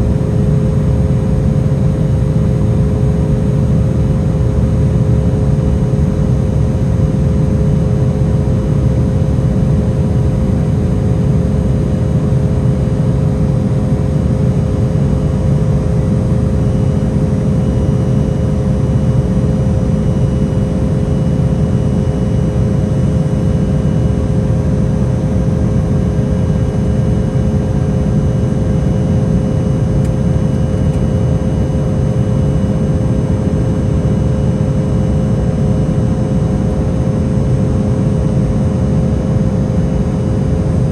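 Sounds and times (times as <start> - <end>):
airliner cabin engine roar: 0.0 - 40.9.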